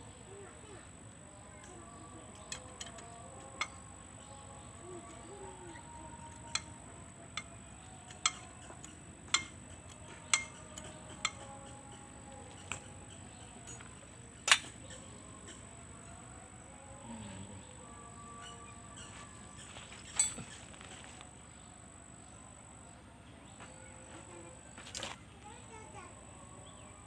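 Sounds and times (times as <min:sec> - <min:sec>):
metal tools clinking and knocking: 0:02.4 - 0:03.9, 0:13.6 - 0:15.0, 0:19.6 - 0:21.2.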